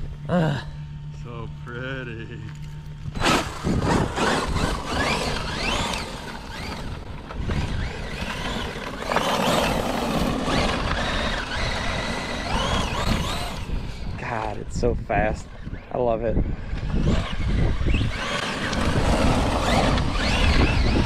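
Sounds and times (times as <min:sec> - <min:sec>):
electric rc truck motors whining: 0:00.0 - 0:21.0
rough rushing noise: 0:16.8 - 0:21.0.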